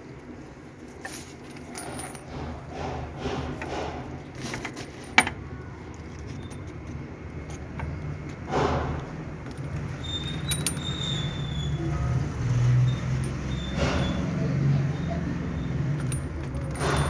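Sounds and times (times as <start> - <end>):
light clinking: 0.9 - 2.6, 9.4 - 11.7, 12.9 - 14.3, 15.0 - 17.0.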